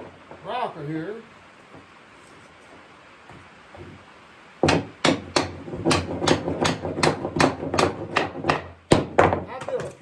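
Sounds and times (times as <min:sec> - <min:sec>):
hammer striking wood: 0:04.6 - 0:10.0.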